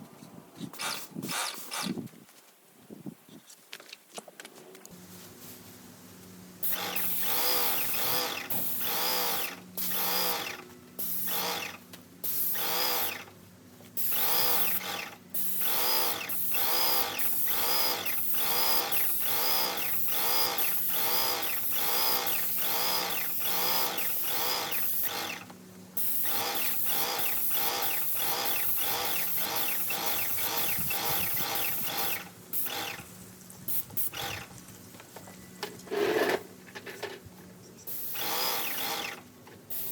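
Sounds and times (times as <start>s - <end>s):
paint sprayer spraying in bursts: 6.6s - 34.6s, 37.9s - 39.9s.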